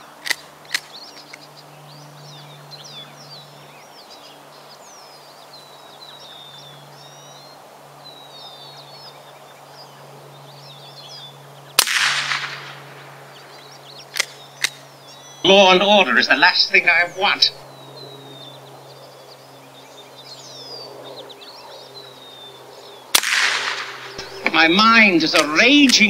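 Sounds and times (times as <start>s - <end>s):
birds chirping: 0.0s - 26.0s
steady low hum: 0.0s - 26.0s
loud sharp bang: 11.8s - 12.8s, 23.2s - 25.6s.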